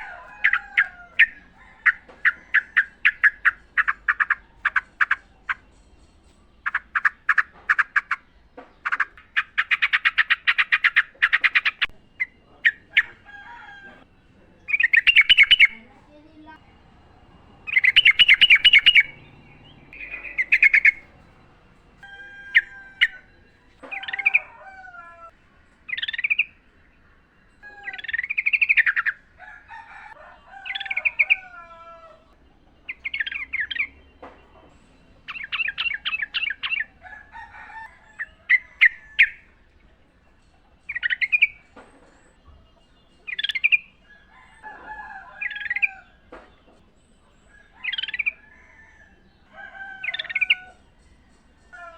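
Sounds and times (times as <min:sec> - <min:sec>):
faint lower bird calls: 0:06.6 - 0:16.4, 0:17.2 - 0:29.3
bird singing bubbly phrases: 0:14.6 - 0:15.9, 0:17.4 - 0:21.1.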